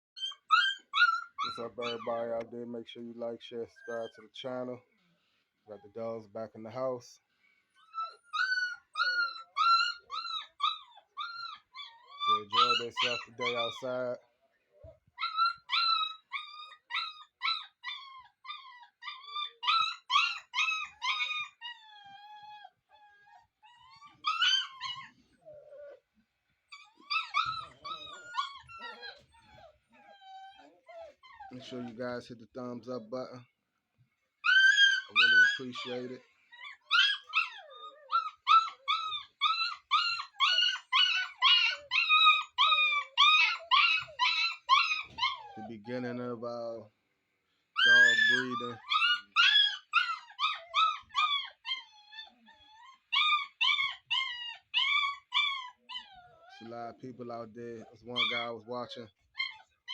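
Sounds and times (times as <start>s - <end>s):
puppies yelping: 0.2s - 4.6s, 7.8s - 14.2s, 14.9s - 33.4s, 34.4s - 46.2s, 47.7s - 59.9s
puppies whining: 0.2s - 4.8s, 7.7s - 14.2s, 14.8s - 33.5s, 34.3s - 46.5s, 47.7s - 59.9s.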